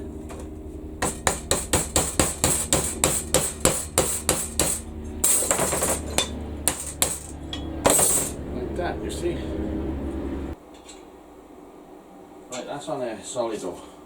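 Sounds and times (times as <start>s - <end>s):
hammer blows on steel: 1.0s - 8.4s
scraping rattling noise: 1.0s - 9.5s.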